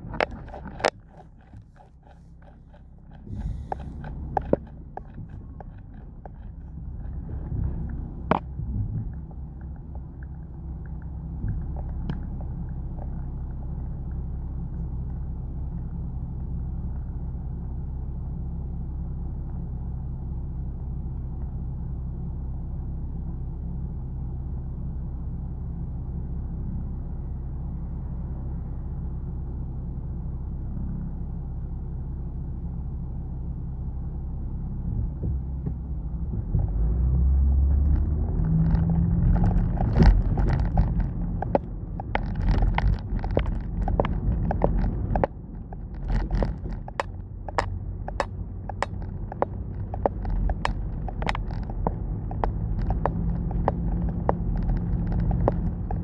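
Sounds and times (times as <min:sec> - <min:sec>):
car engine idling: 0:00.0 - 0:56.0
clicks and knocks: 0:37.9 - 0:56.0.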